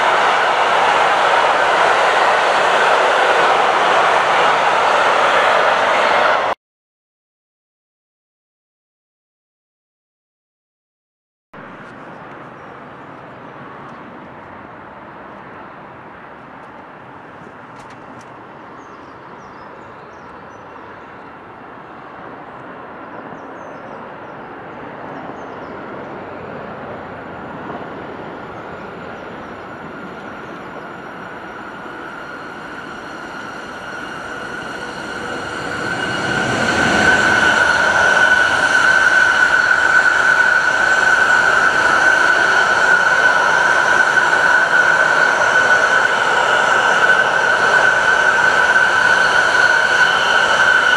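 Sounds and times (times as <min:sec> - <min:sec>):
train rumbling: 0:00.0 - 0:06.6, 0:11.6 - 0:50.9
high ringing tone: 0:28.4 - 0:50.9.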